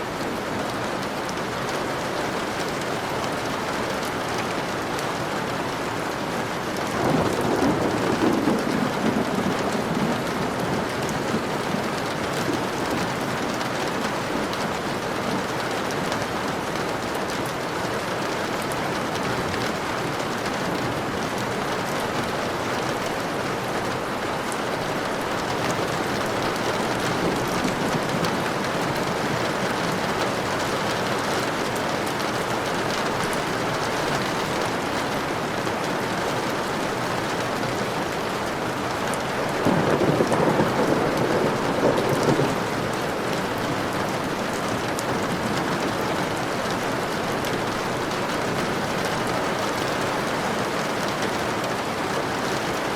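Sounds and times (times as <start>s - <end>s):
steady rain falling: 0.0s - 52.9s
roll of thunder: 6.9s - 12.7s, 39.6s - 44.1s.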